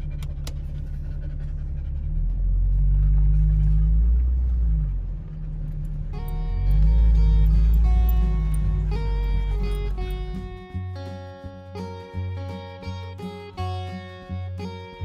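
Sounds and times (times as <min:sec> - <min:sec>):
car driving rumble: 0:00.0 - 0:15.0
strummed guitar music: 0:06.0 - 0:15.0.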